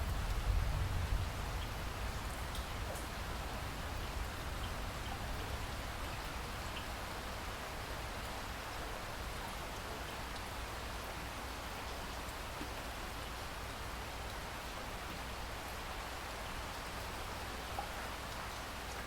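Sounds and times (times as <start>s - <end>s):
rain hiss: 0.0s - 19.0s.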